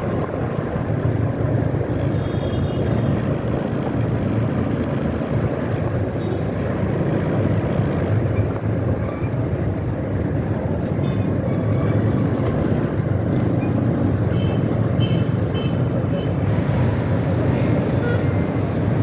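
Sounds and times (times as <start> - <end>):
motorbike engine: 0.0 - 8.4.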